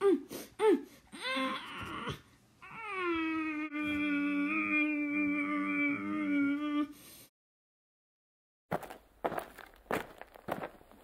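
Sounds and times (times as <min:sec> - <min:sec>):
person humming: 0:00.0 - 0:07.0.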